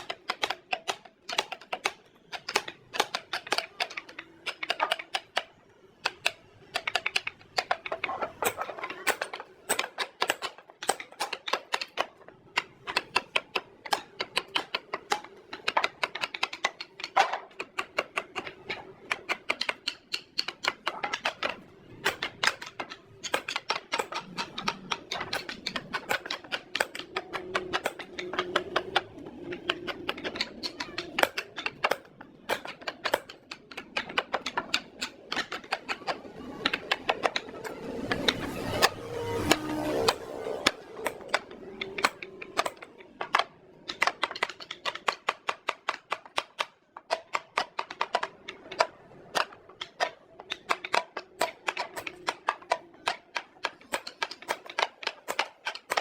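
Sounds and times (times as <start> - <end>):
sharp taps and clicks: 0.0 - 56.0.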